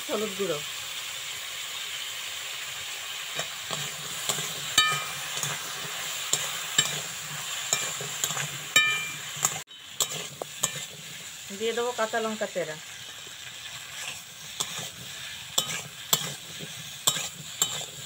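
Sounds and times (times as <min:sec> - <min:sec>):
vegetables sizzling in a wok: 0:00.0 - 0:18.0
spatula scraping wok: 0:01.5 - 0:18.0
spatula clinking on wok: 0:03.7 - 0:05.6, 0:06.3 - 0:07.1, 0:07.7 - 0:11.0, 0:15.6 - 0:16.4, 0:17.0 - 0:18.0.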